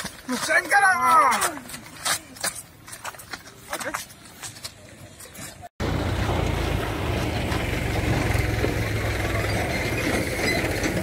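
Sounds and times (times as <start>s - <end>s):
loud rumbling noise: 5.8s - 11.0s.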